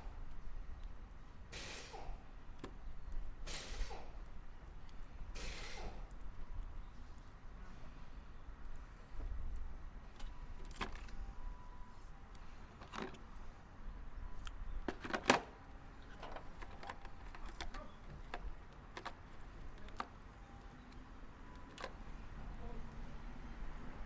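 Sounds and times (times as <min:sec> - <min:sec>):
tools and parts clicking: 0:14.4 - 0:20.2.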